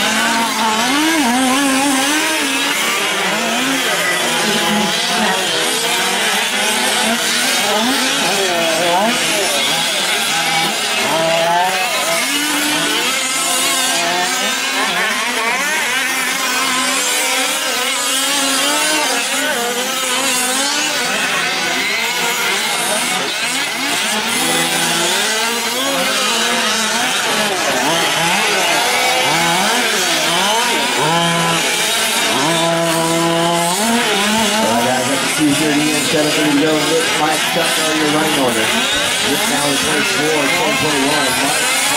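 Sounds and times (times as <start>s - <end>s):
rc truck engines revving: 0.0s - 41.9s.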